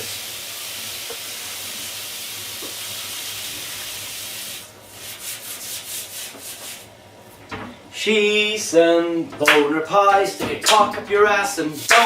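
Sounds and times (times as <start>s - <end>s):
running water hissing: 0.0s - 6.8s
rhythmic scrubbing of pan: 0.5s - 7.0s.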